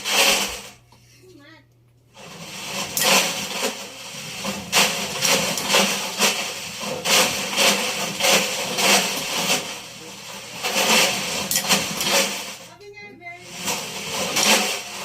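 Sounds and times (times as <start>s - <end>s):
washing machine motor hum: 0.0s - 15.0s
objects knocking against drum: 4.4s - 12.6s.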